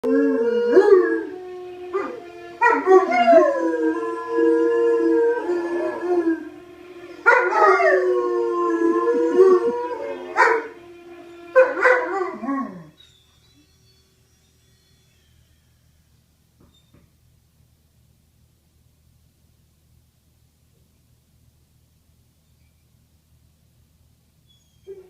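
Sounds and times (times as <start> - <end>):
dogs howling: 0.0 - 13.1.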